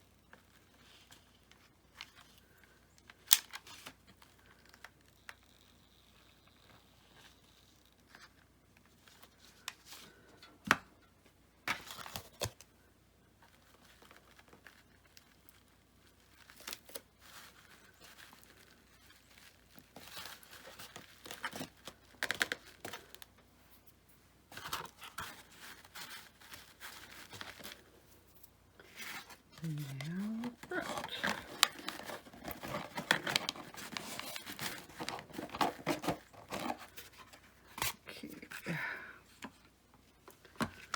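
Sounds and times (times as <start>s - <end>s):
paper rustling and tearing: 28.8s - 38.5s.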